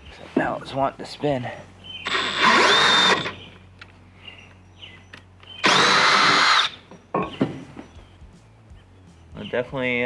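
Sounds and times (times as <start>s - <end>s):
power drill whining: 2.0s - 3.4s, 5.6s - 6.8s
sharp clicks: 2.1s - 3.4s, 5.6s - 6.8s.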